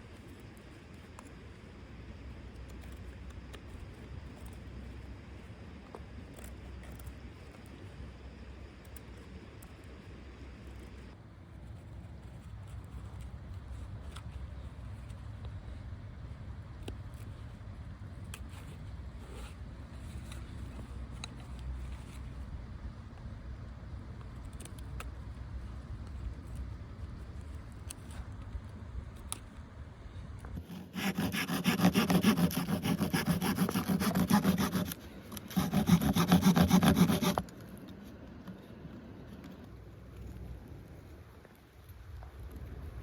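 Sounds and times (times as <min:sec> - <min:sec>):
hand saw cutting wood: 0:30.6 - 0:37.5.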